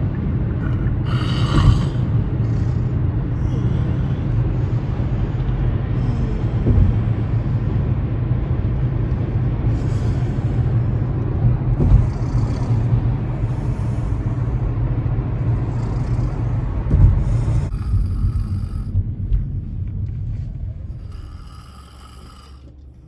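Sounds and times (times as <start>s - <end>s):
car interior driving rumble: 0.0s - 23.0s
car bumps: 6.6s - 7.5s, 11.6s - 13.0s, 16.4s - 20.6s.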